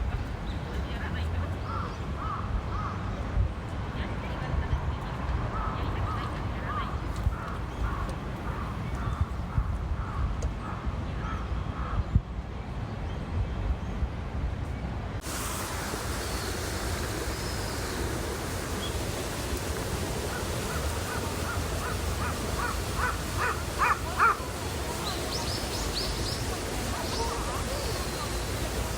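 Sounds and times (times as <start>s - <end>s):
steady rushing hiss: 15.2s - 28.9s
bird cawing: 15.6s - 28.8s.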